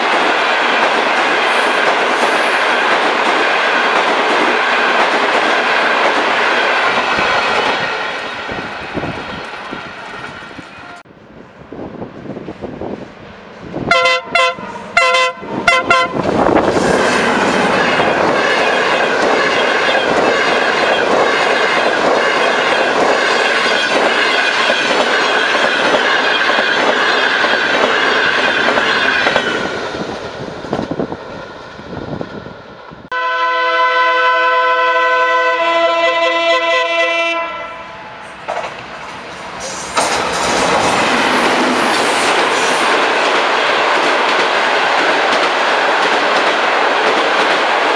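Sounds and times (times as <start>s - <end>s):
train wheels clickety-clack: 0.0s - 8.2s, 15.7s - 31.0s, 38.4s - 47.9s
train rushing past: 0.0s - 47.9s
train horn blasts: 13.8s - 16.4s, 33.1s - 38.2s.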